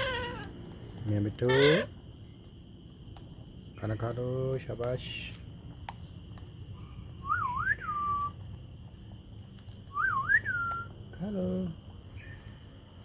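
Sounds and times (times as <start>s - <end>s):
whistled phrase: 7.2s - 8.3s, 9.9s - 10.9s.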